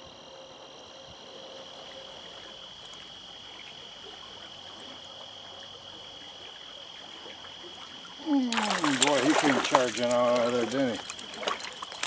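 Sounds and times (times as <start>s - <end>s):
stream water rushing: 8.3s - 12.0s.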